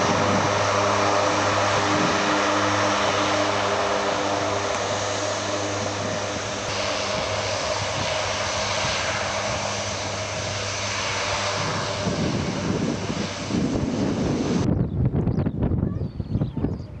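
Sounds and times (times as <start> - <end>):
aircraft engine drone: 0.0 - 17.0
gusty low rumble: 0.0 - 17.0.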